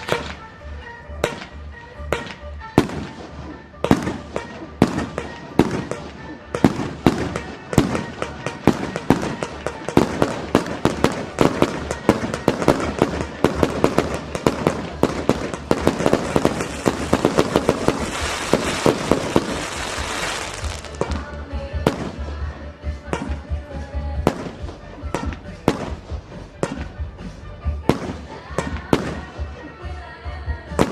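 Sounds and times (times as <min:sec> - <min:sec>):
fireworks bangs: 0:00.0 - 0:00.6, 0:01.2 - 0:22.4
fireworks crackling hiss: 0:03.0 - 0:21.4.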